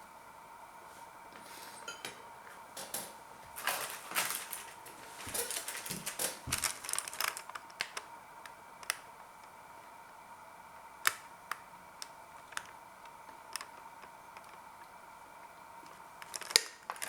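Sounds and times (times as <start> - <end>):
cutlery scraping on a plate: 1.4 - 2.3.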